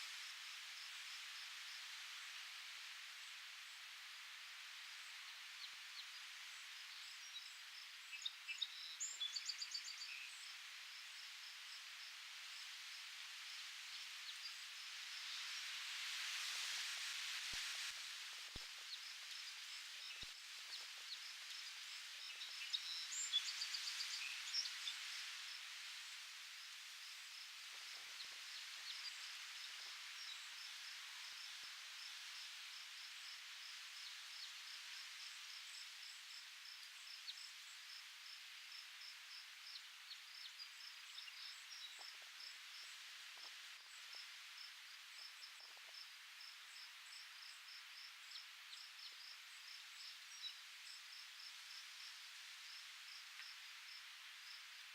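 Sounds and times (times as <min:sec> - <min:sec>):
wind rustling foliage: 0:00.0 - 0:54.9
cricket chirping: 0:26.6 - 0:54.8.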